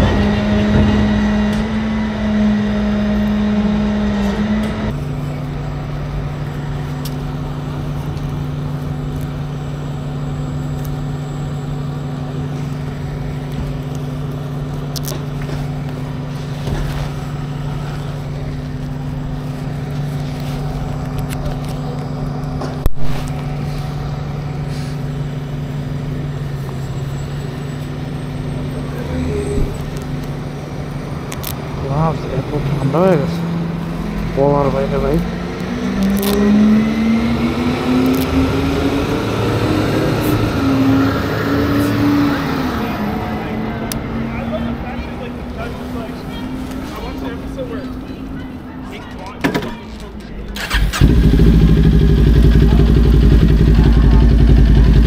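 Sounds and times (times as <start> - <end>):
motorcycle engine running: 50.6 - 55.0.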